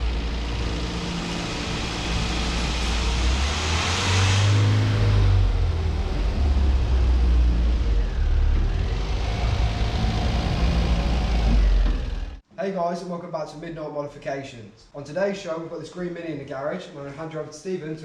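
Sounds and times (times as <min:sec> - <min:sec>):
car engine running: 0:00.0 - 0:12.4.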